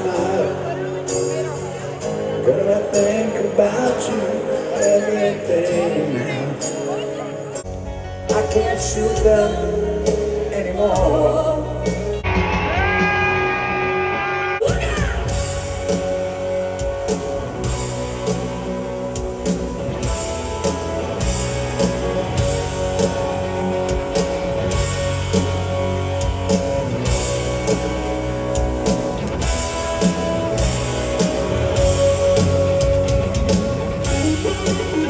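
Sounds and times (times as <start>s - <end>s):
electric guitars: 0.0s - 35.0s.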